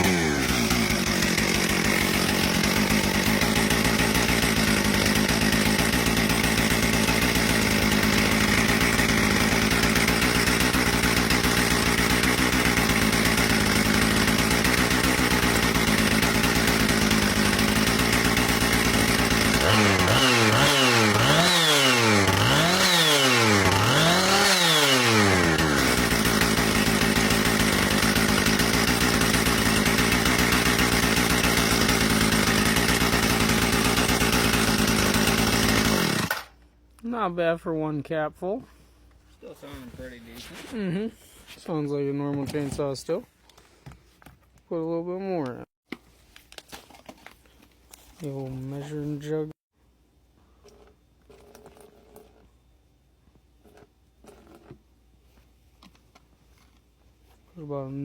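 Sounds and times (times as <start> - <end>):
chainsaw running and revving: 0.0 - 36.5.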